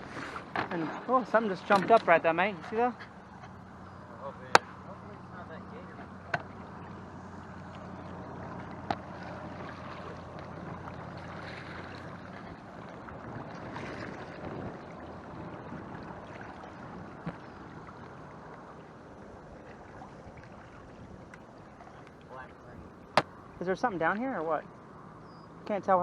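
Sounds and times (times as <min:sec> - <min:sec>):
paddle splashing water: 0:00.0 - 0:25.0.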